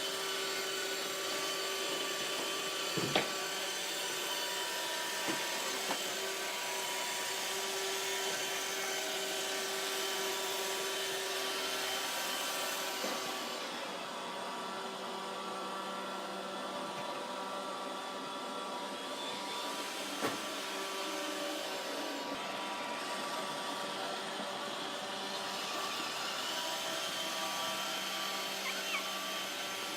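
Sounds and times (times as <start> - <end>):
robot vacuum whirring: 20.5 - 29.9.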